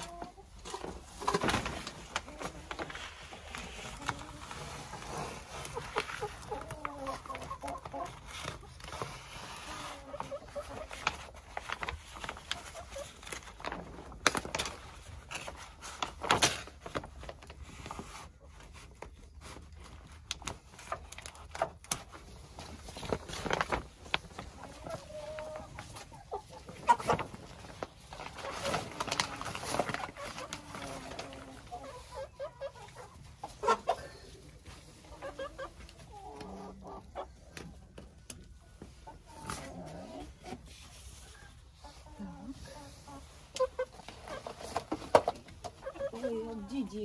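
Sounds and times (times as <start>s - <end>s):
hens clucking: 0.0s - 11.5s, 24.1s - 47.0s.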